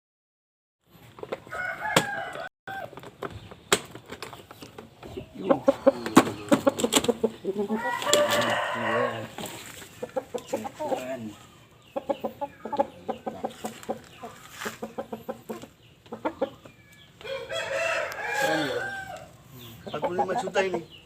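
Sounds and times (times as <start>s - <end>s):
rooster crowing: 1.5s - 2.9s, 7.7s - 9.4s, 17.2s - 19.4s
rooster clucking: 5.0s - 20.9s.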